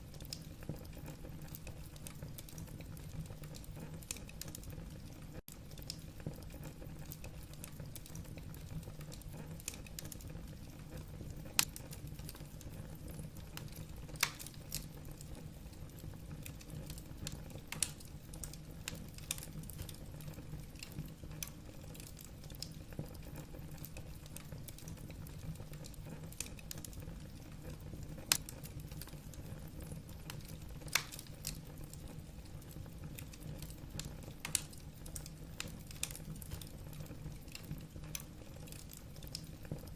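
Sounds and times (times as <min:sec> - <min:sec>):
low fire rumble: 0:00.0 - 0:39.9
wood fire crackling: 0:00.0 - 0:39.9
sharp fire pops: 0:11.5 - 0:11.9.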